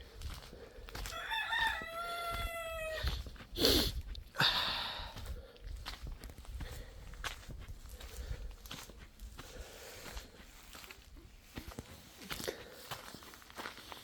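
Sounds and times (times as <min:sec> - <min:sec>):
rooster crowing: 0:01.0 - 0:03.2.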